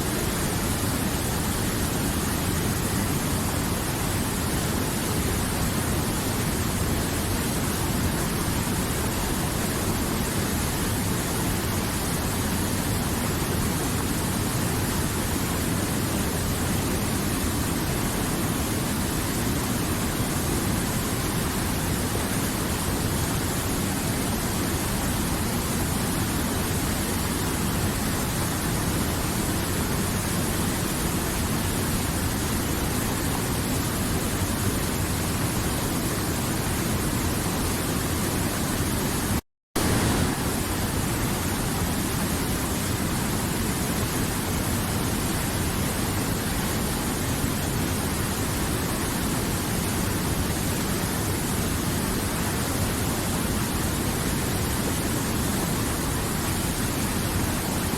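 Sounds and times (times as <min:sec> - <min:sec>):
river water rushing: 0:00.0 - 0:57.9.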